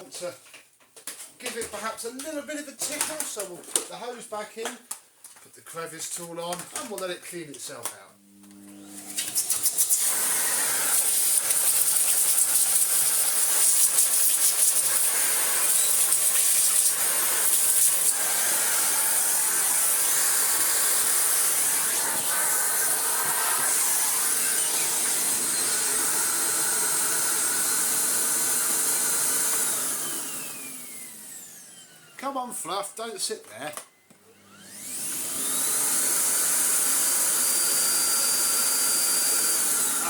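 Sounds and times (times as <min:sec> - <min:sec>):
vacuum cleaner running: 0:08.2 - 0:32.2, 0:34.3 - 0:40.0
vacuum winding down whine: 0:18.0 - 0:32.0.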